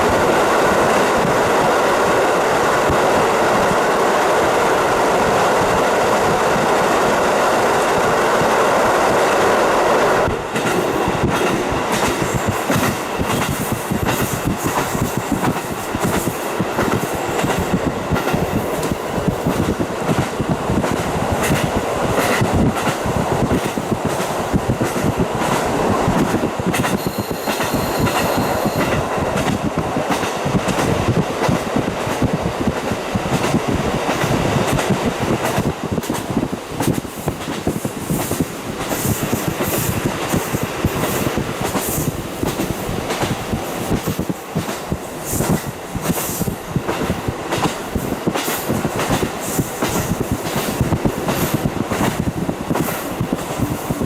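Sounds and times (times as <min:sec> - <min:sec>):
train running and wind noise: 0:00.0 - 0:54.0
train wheels clattering over rail joints: 0:10.5 - 0:54.0.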